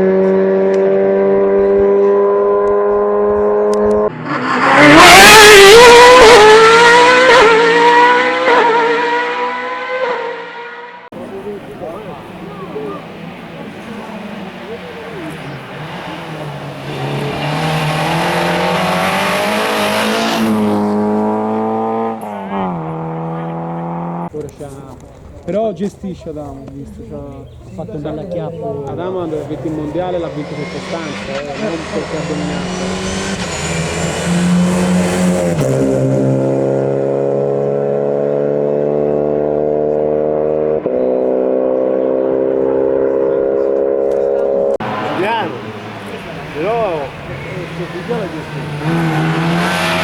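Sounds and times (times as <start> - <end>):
race car engine passing: 0.0 - 24.3, 27.8 - 50.0
race car engine running: 28.3 - 38.2, 44.0 - 50.0.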